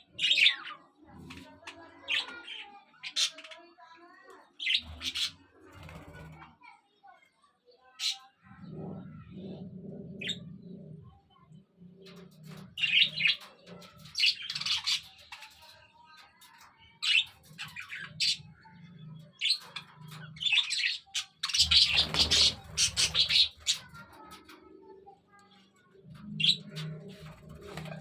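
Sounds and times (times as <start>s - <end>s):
budgerigars chirping and chattering: 0.0s - 3.5s, 4.6s - 6.3s, 12.1s - 24.6s, 26.2s - 28.0s.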